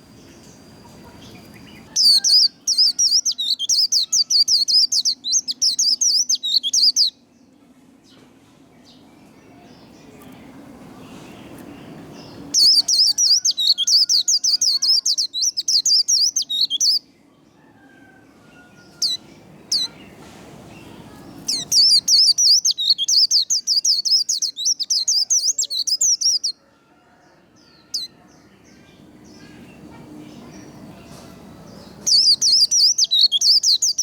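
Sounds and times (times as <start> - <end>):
bird twittering: 0.0 - 7.1, 12.5 - 17.0, 21.5 - 26.5, 32.0 - 34.0
sharp bird calls: 0.0 - 7.1, 12.3 - 17.0, 21.5 - 26.6, 31.9 - 34.0.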